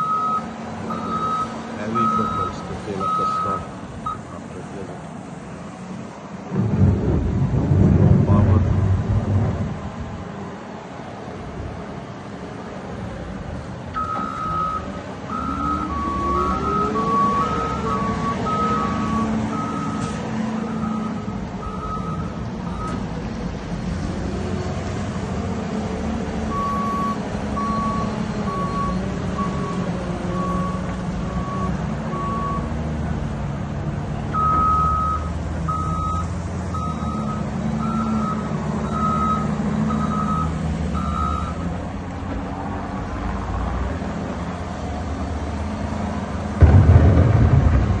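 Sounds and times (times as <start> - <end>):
reversing alarm beeping: 0.0 - 4.4, 14.0 - 23.0, 26.5 - 32.7, 34.4 - 41.7
heavy diesel engines running: 0.0 - 48.0
loud low thud: 6.5 - 9.8, 46.6 - 48.0.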